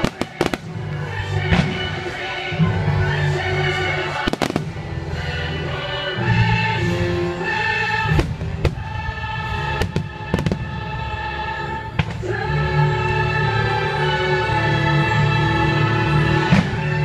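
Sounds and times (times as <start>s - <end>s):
fireworks bangs: 0.0s - 0.8s, 1.4s - 2.2s, 4.2s - 4.8s, 9.8s - 10.9s
orchestral music with choir: 0.0s - 17.0s.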